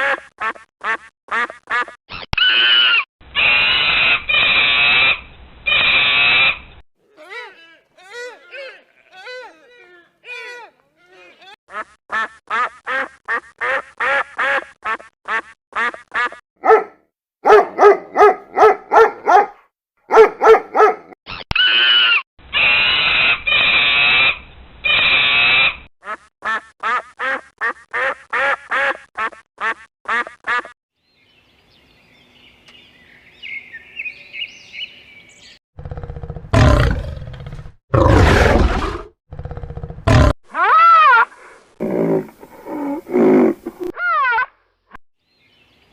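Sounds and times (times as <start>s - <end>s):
animal roars: 35.8s - 40.4s.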